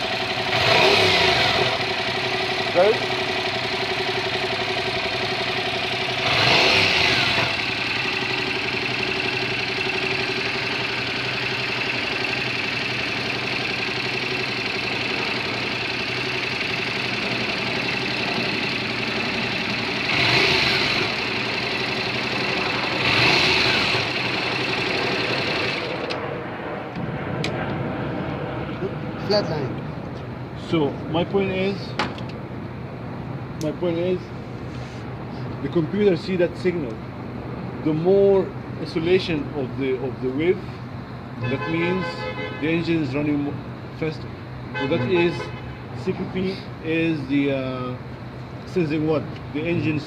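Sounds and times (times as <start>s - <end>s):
motorcycle engine idling: 0.0s - 26.2s
motorcycle engine revving: 0.0s - 26.2s.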